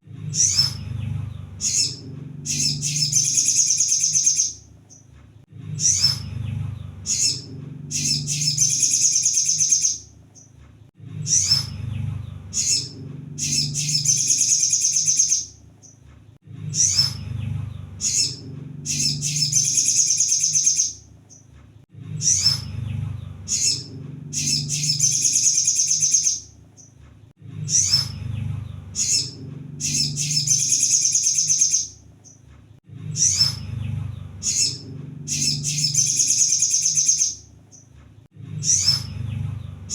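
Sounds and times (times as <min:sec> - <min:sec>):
bird chirping and twittering: 0:00.1 - 0:27.0, 0:27.6 - 0:32.5, 0:33.1 - 0:38.0, 0:38.6 - 0:39.9.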